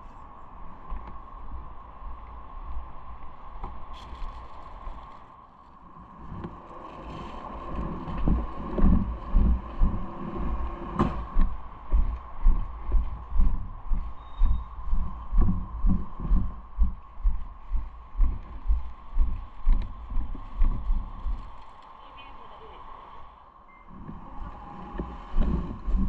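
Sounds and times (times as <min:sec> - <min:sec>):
bicycle riding rumble: 0:00.0 - 0:26.0
thin constant whine: 0:00.0 - 0:26.0
low thumps: 0:08.0 - 0:21.6.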